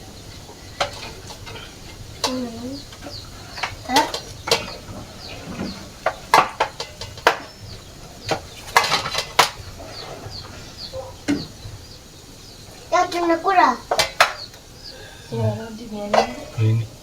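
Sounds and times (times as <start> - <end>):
kitchen utensils clattering: 0.0 - 15.2, 15.8 - 17.0
chickens clucking: 0.0 - 17.0.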